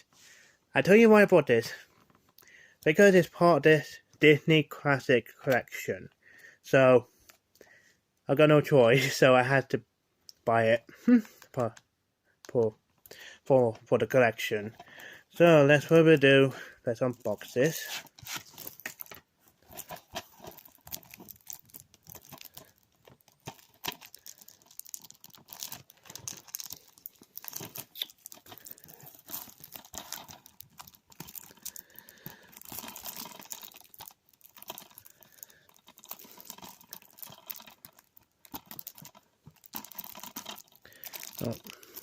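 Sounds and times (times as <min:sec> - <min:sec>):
plastic wrap crinkling and tearing: 0:17.3 - 0:42.0.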